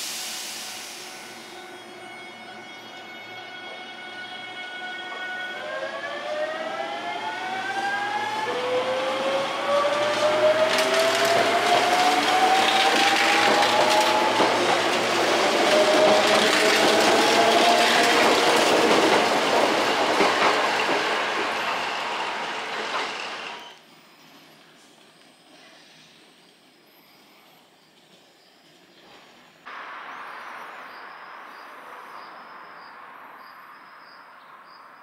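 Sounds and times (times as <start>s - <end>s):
wheel-on-rail noise: 8.1s - 24.6s
clacks over rail joints: 10.1s - 21.5s.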